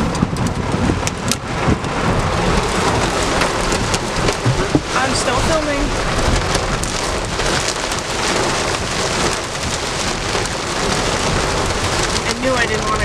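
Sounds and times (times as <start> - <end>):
heavy rain drumming on car roof: 0.0 - 13.0.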